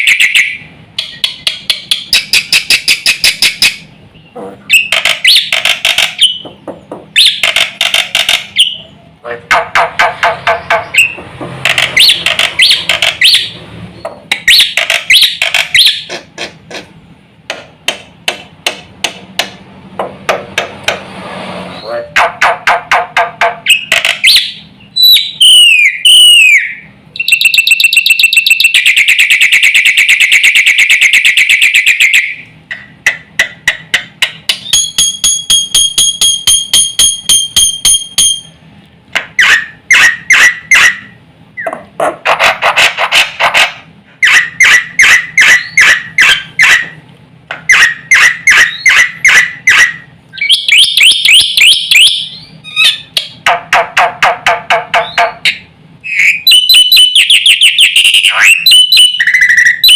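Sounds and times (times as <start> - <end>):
bird singing varied song: 0.0 - 9.0, 23.7 - 32.9, 34.2 - 38.5, 44.2 - 46.8, 47.7 - 49.7, 50.3 - 53.4, 55.0 - 59.9.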